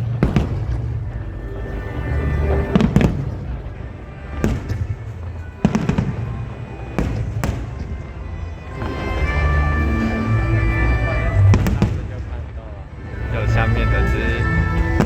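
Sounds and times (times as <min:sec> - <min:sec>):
fireworks exploding: 0:00.0 - 0:13.3
faint music: 0:00.0 - 0:15.0
low rumble of fireworks display: 0:00.0 - 0:15.0.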